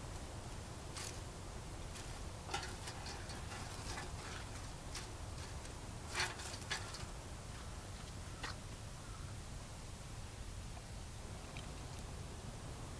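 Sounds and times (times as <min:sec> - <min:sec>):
wood fire crackling: 0:00.0 - 0:08.6.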